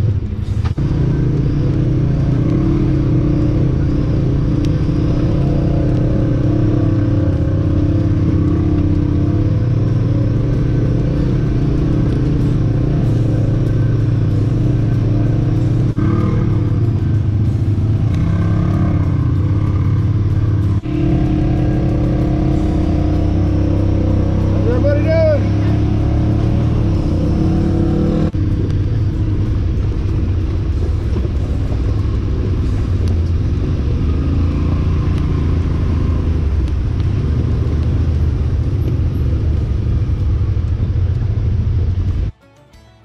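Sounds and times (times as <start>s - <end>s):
utility vehicle engine running: 0.0s - 42.3s.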